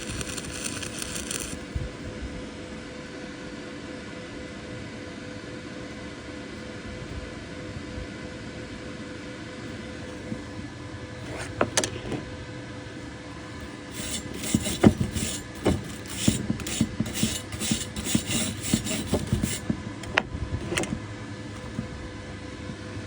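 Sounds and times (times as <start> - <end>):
steady hum: 0.0 - 5.0, 6.1 - 23.0
rasping strokes on metal: 13.7 - 20.9.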